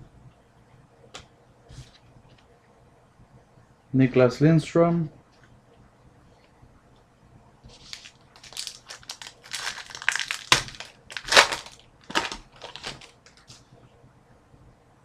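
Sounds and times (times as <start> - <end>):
foil wrapper crinkling: 7.7 - 13.5.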